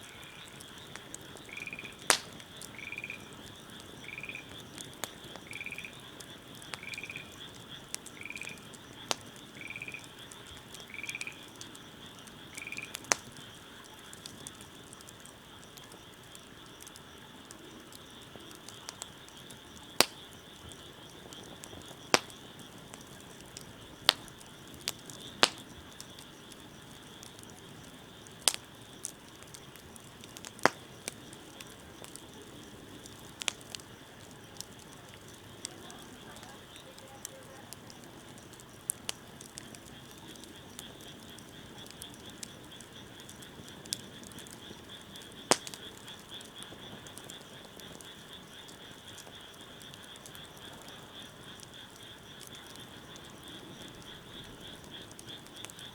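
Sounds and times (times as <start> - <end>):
frog croaking: 0.0 - 17.5, 18.1 - 55.9
wood fire crackling and popping: 0.0 - 55.9.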